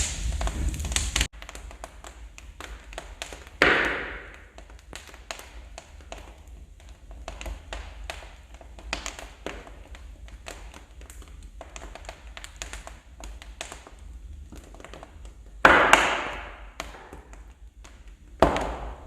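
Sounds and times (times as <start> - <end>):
loud fire pop: 0.0 - 1.4, 3.6 - 4.6, 15.6 - 17.3, 18.4 - 19.0
wood fire crackling: 0.0 - 19.0.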